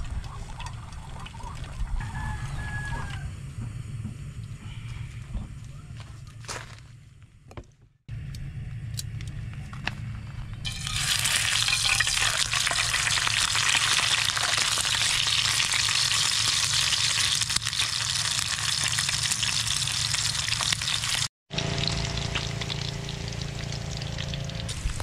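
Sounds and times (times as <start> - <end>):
pork sizzling in oil: 10.6 - 25.0.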